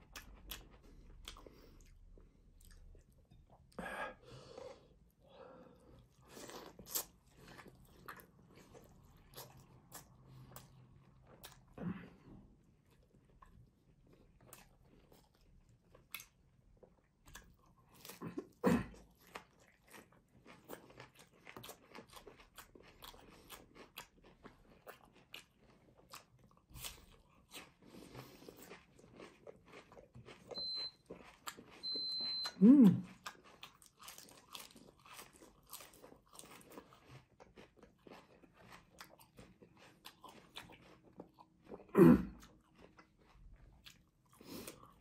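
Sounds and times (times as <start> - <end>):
crunching and chewing: 0.0 - 3.8, 5.8 - 45.0.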